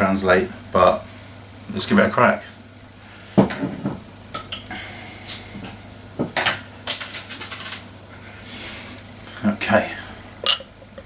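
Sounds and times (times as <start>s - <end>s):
bottle opening hiss: 5.3s - 5.7s
glassy clinks: 6.9s - 7.9s.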